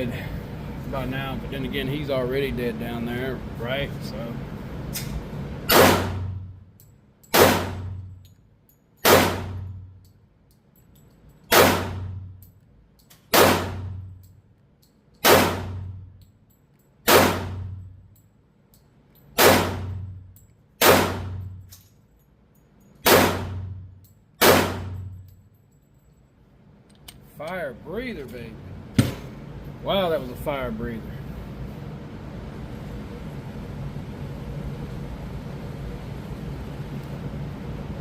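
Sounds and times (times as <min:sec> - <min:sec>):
pistol shots with echo: 0:05.7 - 0:06.4, 0:07.3 - 0:08.0, 0:09.0 - 0:09.7, 0:11.5 - 0:12.3, 0:13.3 - 0:14.0, 0:15.2 - 0:16.0, 0:17.0 - 0:17.8, 0:19.4 - 0:20.1, 0:20.8 - 0:21.5, 0:23.0 - 0:23.8, 0:24.4 - 0:25.1.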